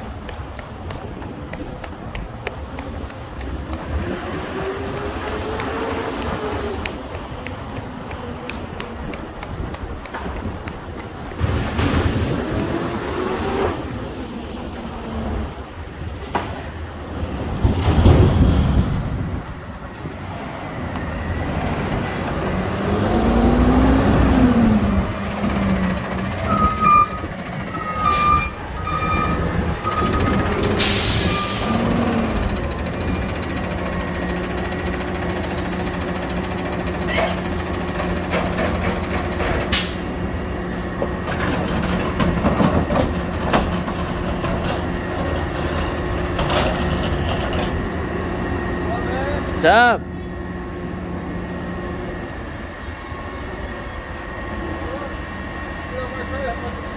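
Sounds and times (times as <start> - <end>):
diesel engine revving: 3.2 - 8.8, 11.2 - 56.9
reversing alarm beeps: 26.2 - 31.9
air brake hiss: 30.8 - 31.8, 39.7 - 40.2.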